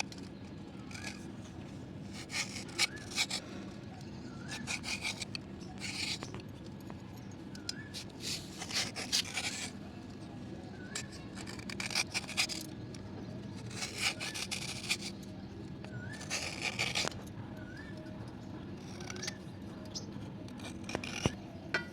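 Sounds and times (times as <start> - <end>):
slate pencils scraping: 0.0 - 1.3, 2.0 - 6.4, 7.6 - 9.8, 10.8 - 13.0, 13.6 - 15.2, 15.9 - 18.0, 18.8 - 21.4.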